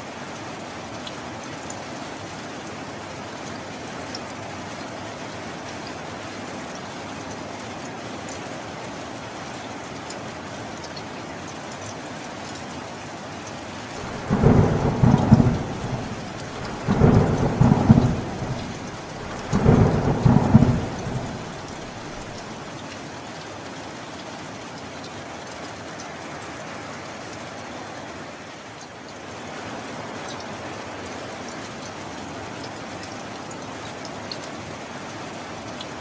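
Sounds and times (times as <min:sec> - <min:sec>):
heavy rain: 0:00.0 - 0:36.0
thunder rumbling: 0:14.0 - 0:22.6.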